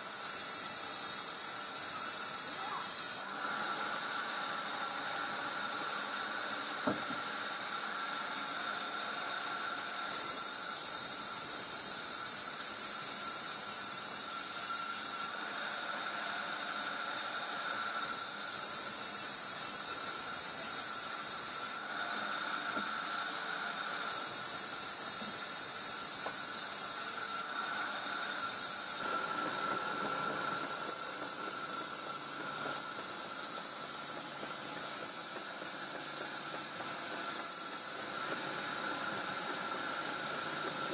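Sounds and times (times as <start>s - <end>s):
loud high hissing bursts: 0.0s - 3.2s, 10.1s - 15.3s, 18.0s - 21.8s, 24.1s - 27.6s, 28.2s - 29.4s
sawmill machinery whining: 0.0s - 40.9s.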